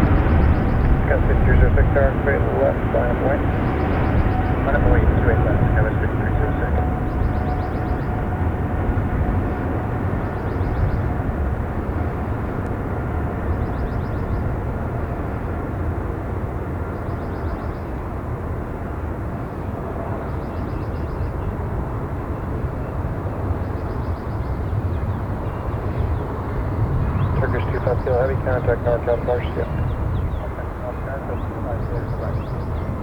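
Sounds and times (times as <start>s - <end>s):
jet engines roaring: 0.0s - 17.0s, 21.2s - 33.0s
wind rumble on microphone: 0.0s - 33.0s.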